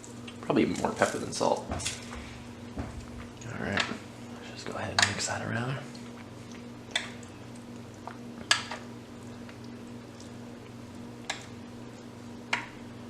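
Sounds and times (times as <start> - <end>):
steady low hum: 0.0 - 13.0
spoon stirring food: 2.8 - 10.3.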